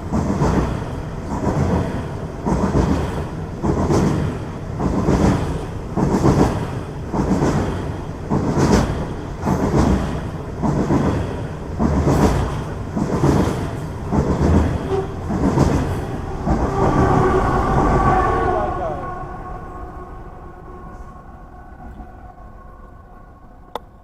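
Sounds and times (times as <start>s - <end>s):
train wheels clacking over rail joints: 0.0s - 17.0s.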